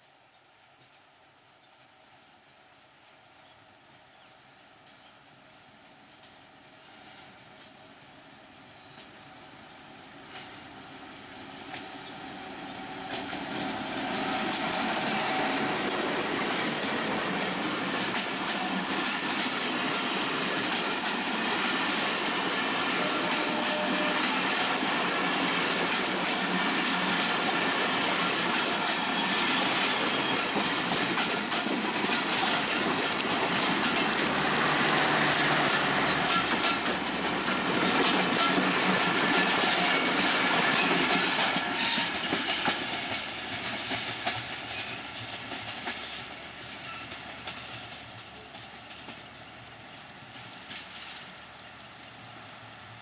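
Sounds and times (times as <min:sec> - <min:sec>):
diesel locomotive arriving: 0:01.4 - 0:53.0
passenger coaches rumbling past: 0:06.4 - 0:53.0
wheels clattering over rail joints: 0:13.0 - 0:52.2.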